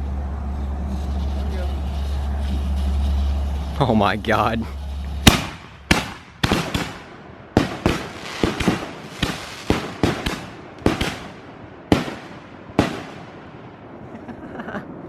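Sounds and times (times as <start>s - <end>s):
fireworks bangs echoing: 4.8s - 14.0s.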